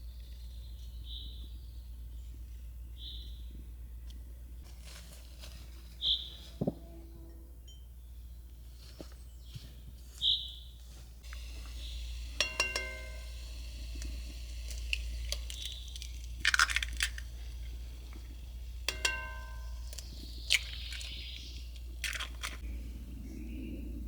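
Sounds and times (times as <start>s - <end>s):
rustling and crunching: 4.6s - 6.9s, 8.6s - 22.7s
glass jars clinking: 12.2s - 22.6s.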